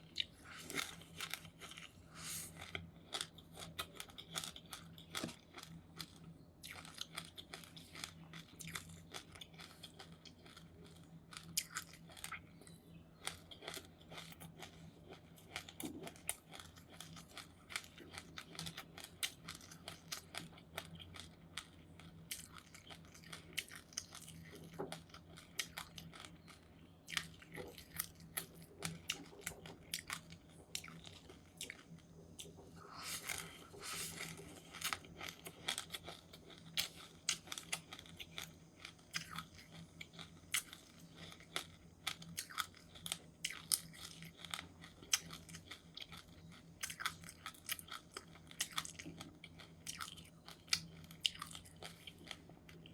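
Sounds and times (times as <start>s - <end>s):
chewing crunchy seeds: 0.0s - 52.9s
faint low hum: 0.0s - 52.9s.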